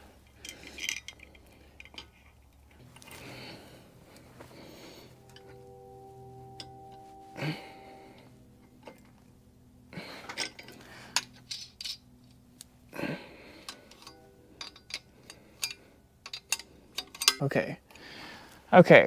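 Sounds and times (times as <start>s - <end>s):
metal parts clinking: 0.0s - 4.6s, 10.2s - 12.7s, 13.6s - 17.5s
metal scraping: 0.0s - 17.6s.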